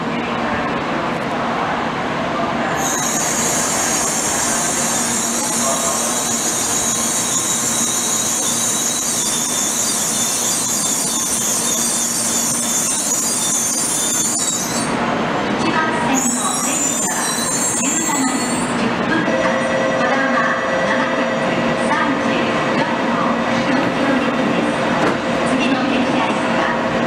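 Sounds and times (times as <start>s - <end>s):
high-pitched brake squeal: 2.8s - 15.0s, 16.1s - 18.8s.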